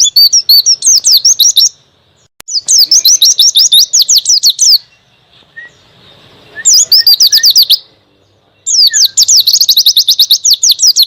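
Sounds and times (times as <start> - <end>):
bird singing high sliding notes: 0.0 - 11.0.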